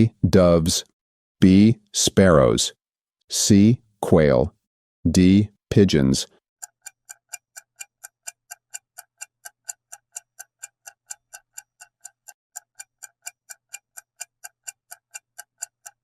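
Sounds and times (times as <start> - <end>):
clock ticking: 6.6 - 16.0.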